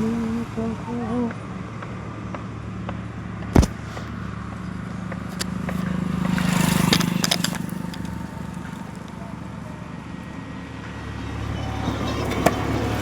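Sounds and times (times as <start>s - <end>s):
motorcycle engine running: 0.0s - 13.0s
vehicle passing: 0.0s - 13.0s
sharp knock: 3.6s - 4.1s.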